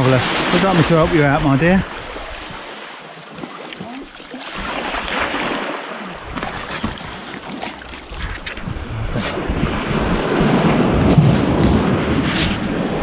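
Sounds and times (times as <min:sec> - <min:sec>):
sea water splashing on rocky shore: 0:00.0 - 0:08.5.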